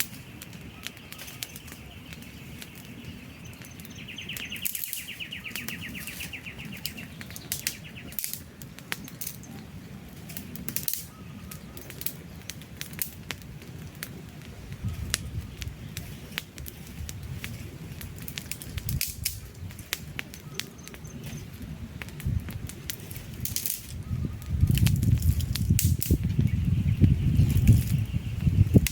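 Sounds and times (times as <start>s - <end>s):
campfire crackling and popping: 0.0s - 28.9s
low rumble of flame: 0.0s - 28.9s
bird trilling: 0.7s - 8.4s.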